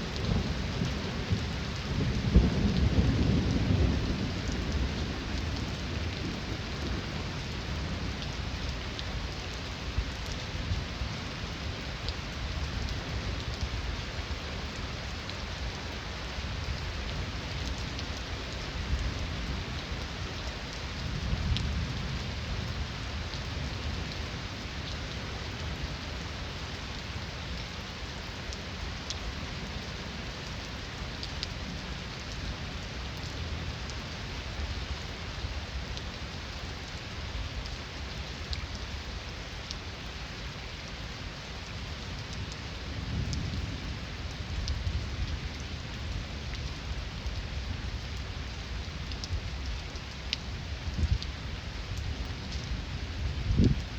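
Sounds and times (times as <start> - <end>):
heavy rain falling: 0.0 - 53.9
distant thunder rumbling: 0.2 - 7.5.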